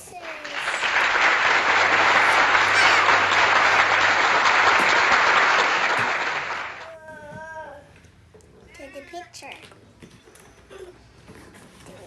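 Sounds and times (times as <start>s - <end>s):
applause: 0.0s - 6.9s.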